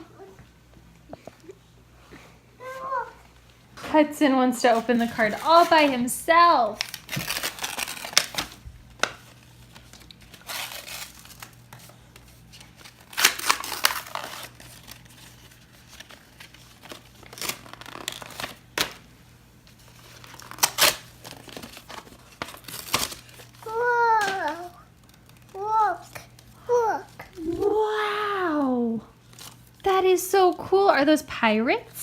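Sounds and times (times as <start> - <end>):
paper envelope tearing and crinkling: 4.6 - 19.1, 19.7 - 26.5.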